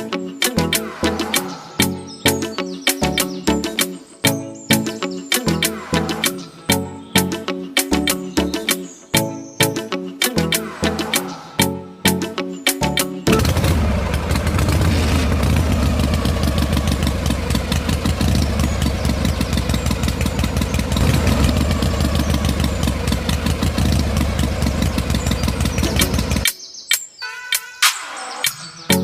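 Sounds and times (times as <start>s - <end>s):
tractor engine chugging: 13.4s - 26.4s.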